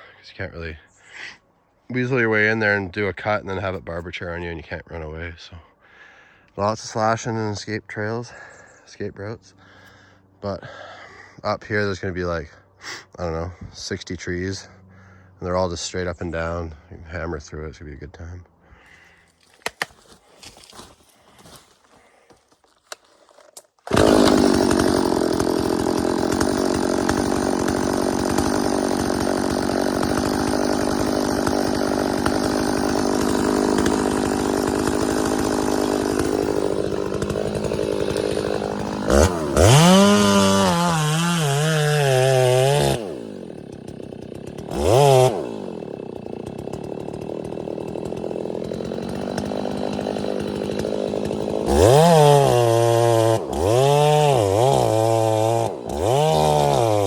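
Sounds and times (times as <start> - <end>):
chainsaw cutting and idling: 22.8 - 57.0.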